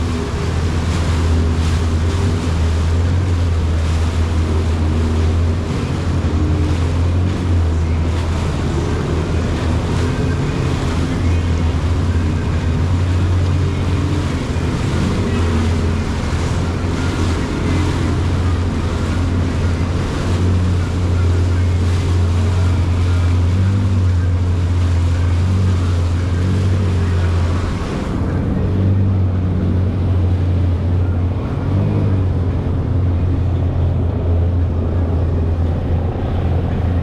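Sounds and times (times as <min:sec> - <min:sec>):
jet ski engine humming: 0:00.0 - 0:37.0
water rushing past hull: 0:00.0 - 0:37.0
wind buffeting microphone: 0:25.8 - 0:37.0.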